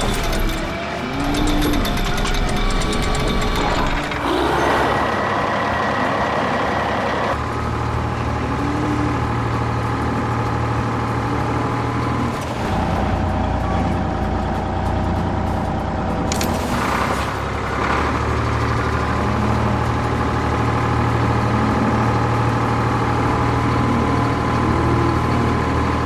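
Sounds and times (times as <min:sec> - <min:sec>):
truck engine running: 0:00.0 - 0:26.0.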